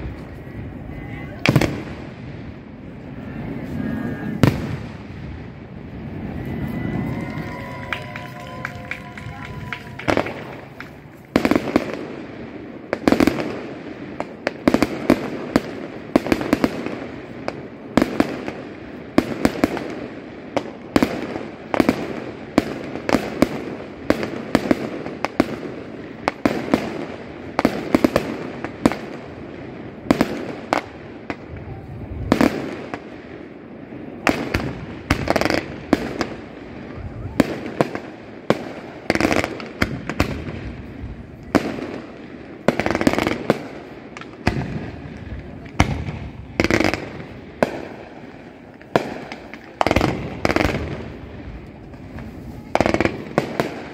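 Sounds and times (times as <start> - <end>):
fireworks bangs: 0.0 - 53.9
fireworks crackle and rumble: 0.0 - 53.9.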